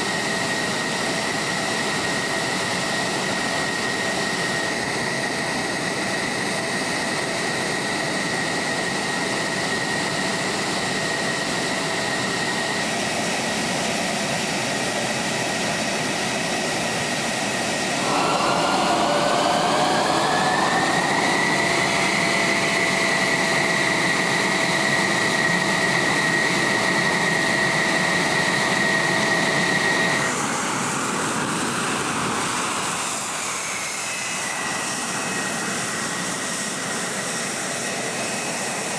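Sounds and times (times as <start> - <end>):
jet engine whine: 0.0 - 38.9
louder whine rising in pitch: 17.4 - 36.5.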